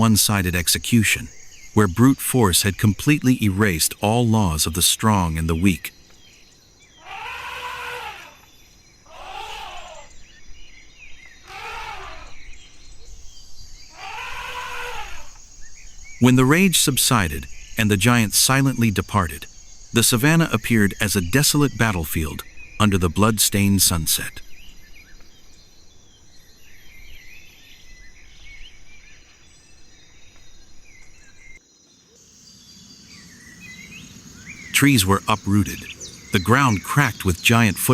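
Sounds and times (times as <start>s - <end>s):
background noise: 0.0s - 37.9s
high insect buzz: 5.7s - 12.9s, 13.5s - 16.2s, 24.4s - 36.4s
animal groaning call: 7.0s - 8.5s, 9.1s - 10.2s, 11.4s - 12.5s, 13.9s - 15.4s.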